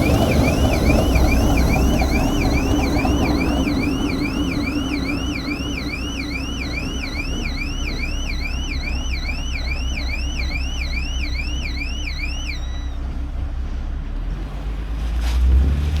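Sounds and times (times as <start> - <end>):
electronic warbling alarm: 0.0 - 13.1
low engine rumble: 0.0 - 16.0.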